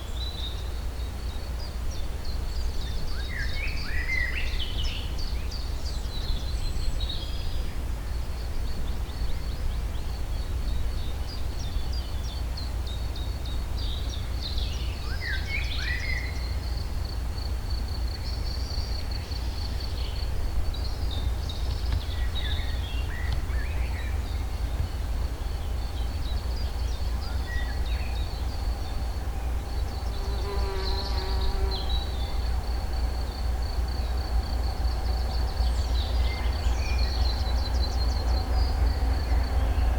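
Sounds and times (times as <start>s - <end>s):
steady low rumble: 16.8s - 30.3s, 31.4s - 39.9s
birds chirping and singing: 18.2s - 39.9s
flying insect buzzing: 29.1s - 34.6s.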